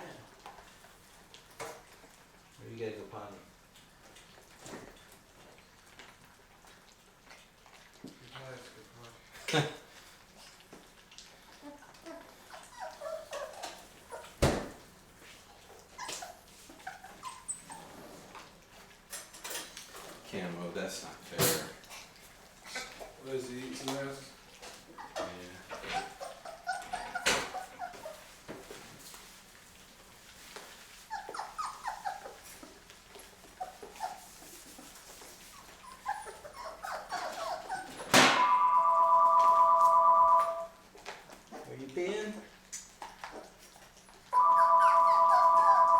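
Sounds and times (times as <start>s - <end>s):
puppies whimpering and squeaking: 10.4s - 14.6s, 15.4s - 18.9s, 24.5s - 28.4s, 30.7s - 41.8s, 43.0s - 45.9s
loud electronic tone: 38.4s - 40.7s.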